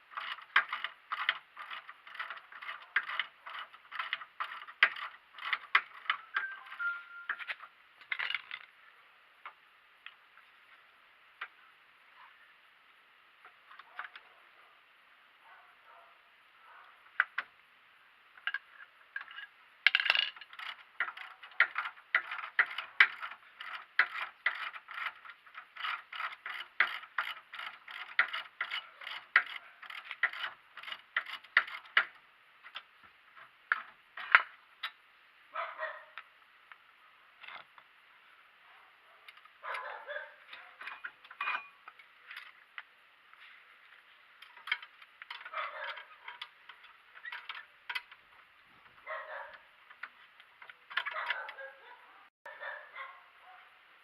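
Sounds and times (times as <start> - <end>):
metal scrapes and clanks: 0.0 - 8.6, 18.5 - 34.5, 39.3 - 42.6, 43.4 - 48.2
ratchet wrench clicking: 0.1 - 6.5, 20.3 - 32.8.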